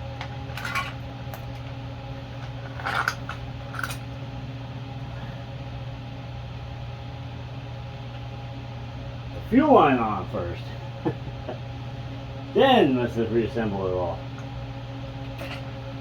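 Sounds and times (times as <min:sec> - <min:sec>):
electric fan hum: 0:00.0 - 0:16.0
clicks and scrapes of parts handled: 0:00.2 - 0:01.7, 0:02.4 - 0:04.1.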